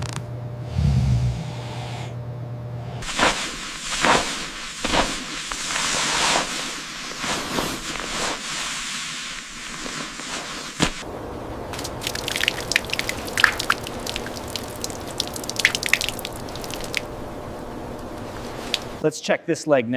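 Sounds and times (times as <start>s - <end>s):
sharp crackles and pops: 3.0s - 11.1s, 11.7s - 17.2s, 17.9s - 19.0s
steady high hiss: 3.0s - 19.0s.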